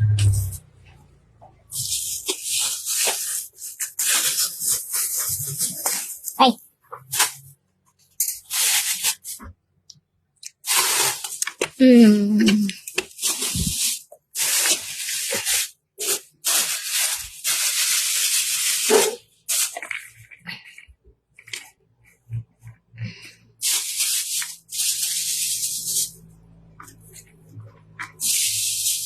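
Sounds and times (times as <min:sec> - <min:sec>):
bursts of hissing spray: 0:01.7 - 0:06.2, 0:12.5 - 0:20.0, 0:23.6 - 0:27.3, 0:28.0 - 0:29.0.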